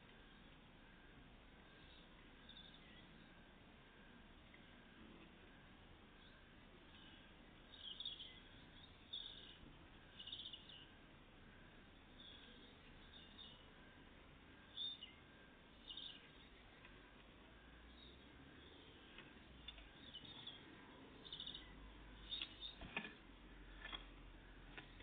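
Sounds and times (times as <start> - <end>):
high-pitched bird chirps: 10.2 - 10.8.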